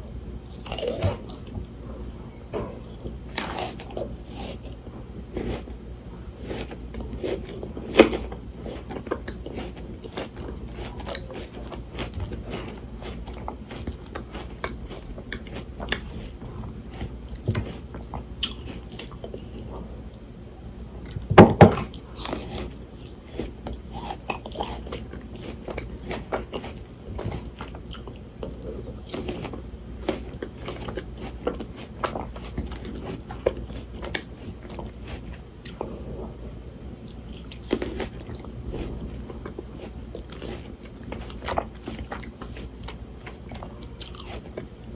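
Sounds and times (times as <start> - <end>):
chewing frozen grapes: 0.0 - 44.9
loud crunching bites: 0.6 - 1.5.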